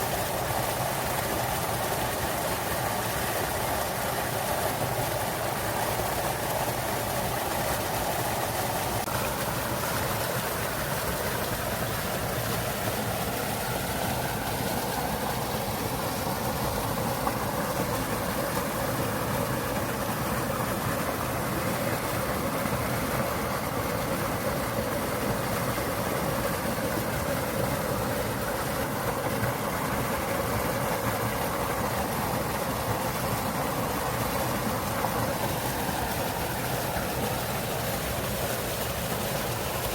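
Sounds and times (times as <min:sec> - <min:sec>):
waterfall splashing over rocks: 0:00.0 - 0:39.9.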